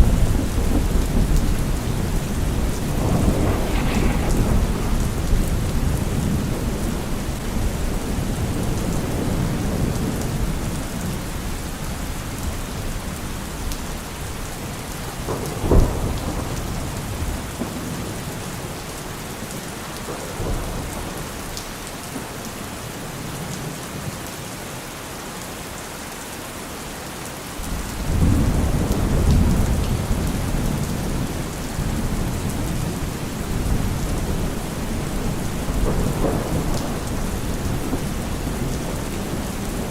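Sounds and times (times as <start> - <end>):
rolling thunder: 0.0 - 10.8, 28.0 - 39.9
steady rain: 0.0 - 39.9
sharp thunder crack: 0.4 - 7.1.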